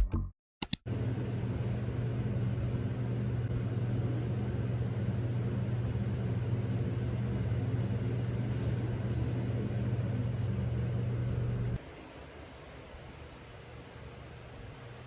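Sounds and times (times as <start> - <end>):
machine hum: 0.9 - 11.8.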